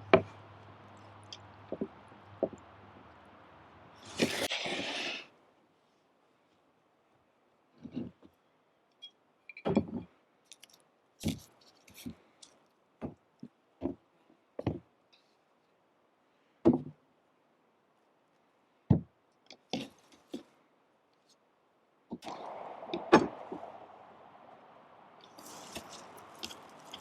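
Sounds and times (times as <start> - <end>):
knocks and clunks: 1.7 - 2.6.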